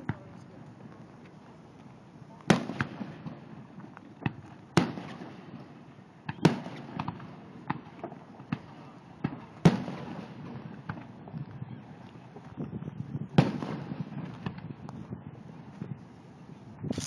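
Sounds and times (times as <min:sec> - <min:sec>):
fireworks cracking: 0:02.4 - 0:05.7
fireworks booming: 0:02.5 - 0:03.6, 0:04.2 - 0:05.7, 0:13.4 - 0:14.6.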